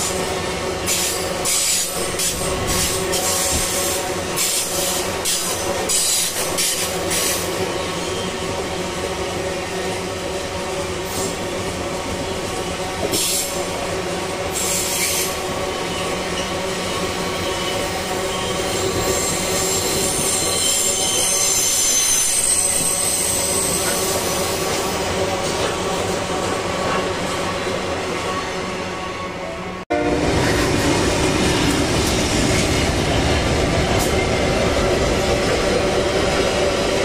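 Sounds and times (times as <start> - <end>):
freight train rumbling: 0.0 - 37.0
high-pitched wheel squeal: 17.4 - 24.6.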